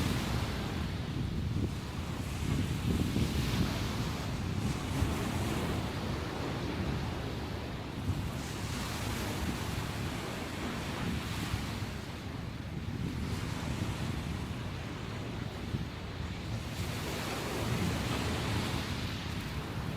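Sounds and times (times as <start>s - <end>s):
wind buffeting microphone: 0.0s - 19.9s
sea waves breaking: 13.2s - 19.9s.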